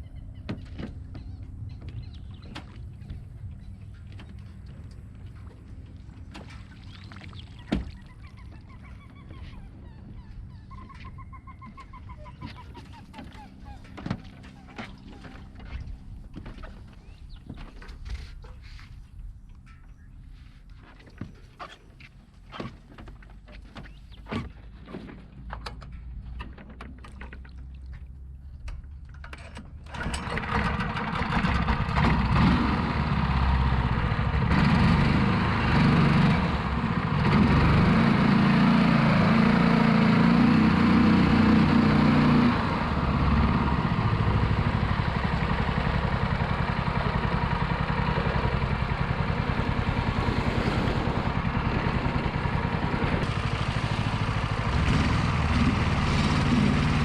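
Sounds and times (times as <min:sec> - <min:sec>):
boat motor running at high revs: 0:30.5 - 0:57.0.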